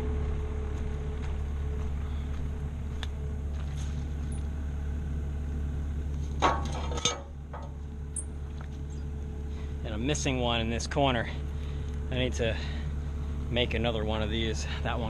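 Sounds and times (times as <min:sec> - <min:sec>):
skid steer engine idling: 0:00.0 - 0:15.0
sharp metal clanks: 0:06.4 - 0:08.3.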